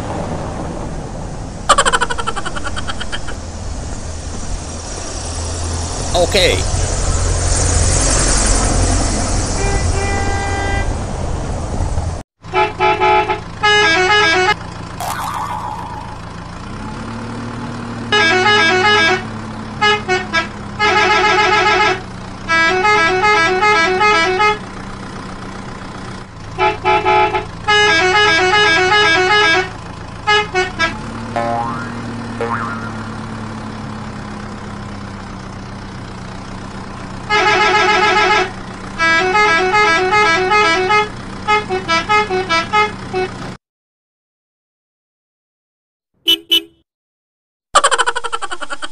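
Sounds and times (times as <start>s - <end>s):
engine hum: 0.0s - 43.6s
vehicle horn beeping: 9.6s - 10.9s, 18.1s - 24.6s, 26.6s - 29.7s, 30.3s - 31.0s, 37.3s - 43.4s, 46.2s - 46.9s.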